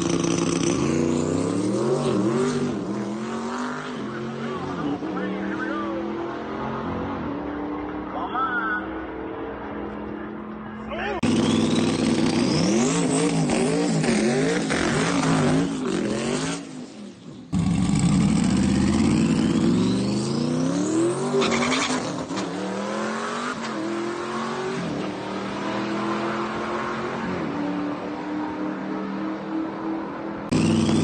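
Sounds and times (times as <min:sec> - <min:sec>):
car engine revving: 0:00.0 - 0:08.2, 0:11.2 - 0:31.0.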